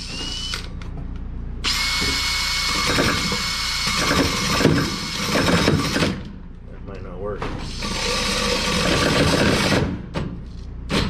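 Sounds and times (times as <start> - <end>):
power drill cutting: 1.6 - 6.2, 7.7 - 9.8.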